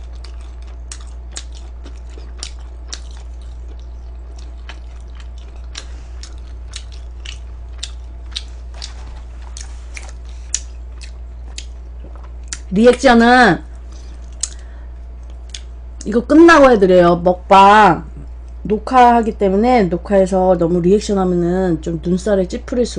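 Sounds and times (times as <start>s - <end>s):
person chewing crunchy food: 0.0s - 12.7s, 13.7s - 15.8s
low electrical hum: 0.0s - 22.9s.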